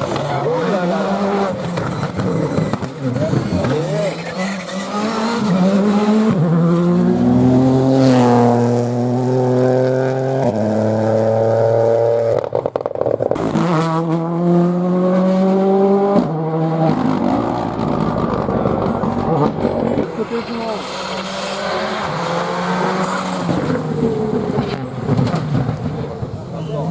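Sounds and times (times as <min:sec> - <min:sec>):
rally car engine revving: 0:00.0 - 0:26.9
exhaust crackling pops: 0:24.5 - 0:26.1.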